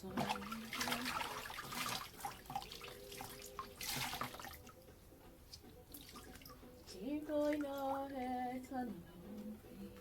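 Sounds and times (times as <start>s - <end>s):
water splashing: 0.0s - 4.7s.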